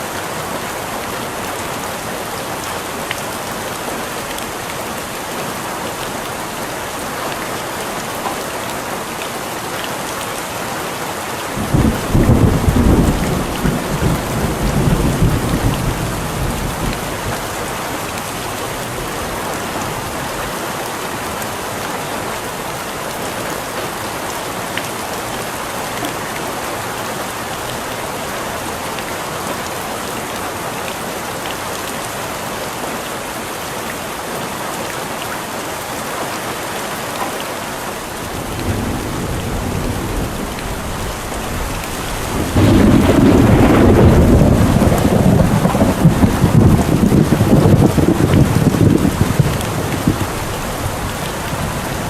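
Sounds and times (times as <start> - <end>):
steady rain falling: 0.0 - 52.0
thunder rumbling: 11.6 - 17.8, 38.2 - 52.0.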